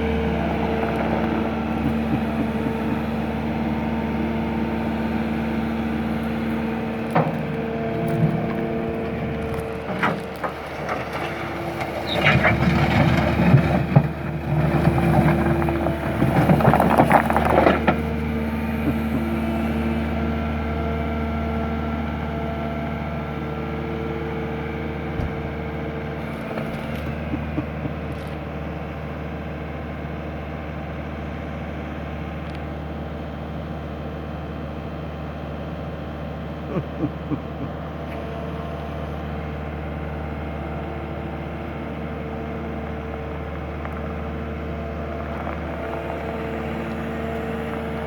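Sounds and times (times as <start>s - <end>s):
loud crunching and scraping: 0.0s - 22.3s, 38.0s - 48.0s
loader engine running: 0.0s - 48.0s.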